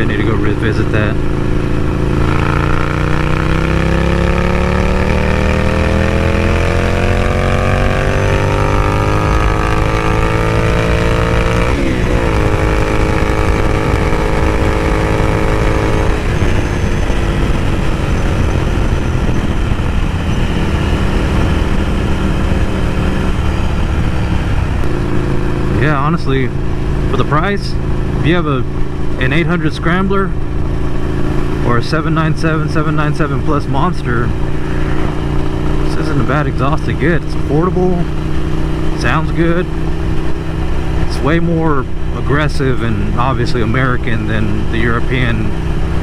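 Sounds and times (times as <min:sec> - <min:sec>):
motorcycle engine revving: 0:00.0 - 0:46.0
rushing wind noise: 0:05.3 - 0:27.2.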